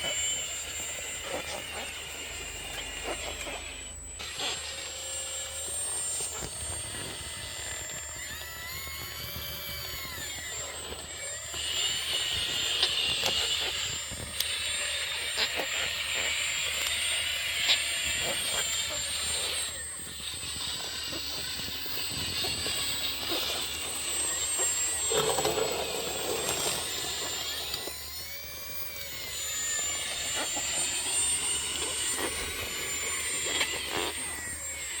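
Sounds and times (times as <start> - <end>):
electric motors whining: 0.0 - 35.0
motor whine rising and falling: 0.0 - 35.0
small clicks: 6.1 - 19.8.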